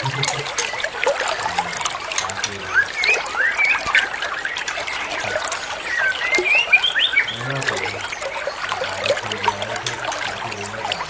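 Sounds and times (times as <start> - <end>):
trickling water: 0.0 - 11.0
bird singing whistled notes: 2.6 - 7.6.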